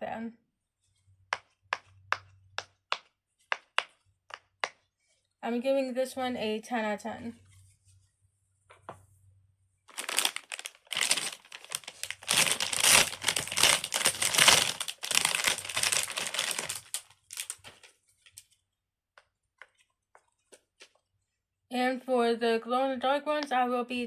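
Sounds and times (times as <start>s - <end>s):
crinkling and rustling: 9.9s - 21.2s.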